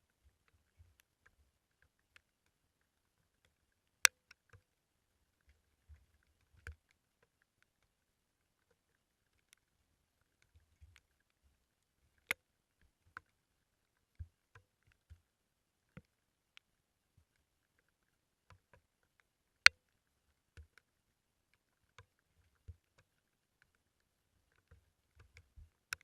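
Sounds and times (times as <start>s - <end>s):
sharp clicks: 24.5s - 26.0s.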